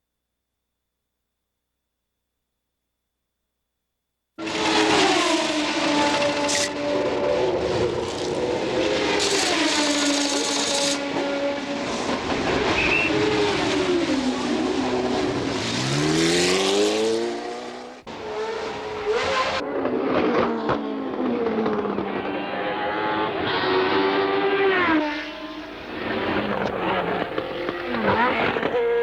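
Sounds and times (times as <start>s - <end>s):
racing car engines: 4.4s - 29.0s.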